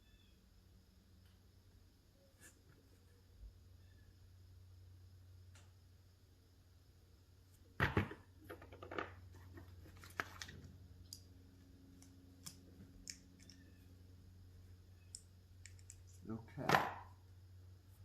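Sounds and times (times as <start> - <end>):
parts clattering on table: 7.8 - 10.6
small parts clicking and knocking: 8.0 - 13.8, 15.0 - 17.1
steady low hum: 9.2 - 18.0.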